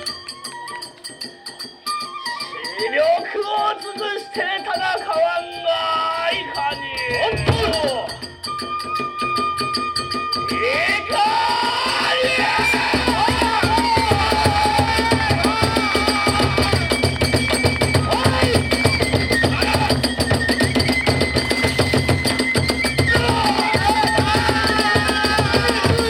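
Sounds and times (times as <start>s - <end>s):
bamboo flute melody: 0.0s - 26.0s
rapid drum beats: 6.3s - 8.5s, 9.2s - 26.0s.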